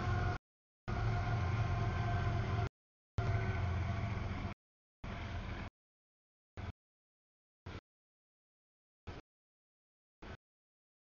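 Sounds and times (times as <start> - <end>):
freight train rumbling past: 0.0 - 5.7.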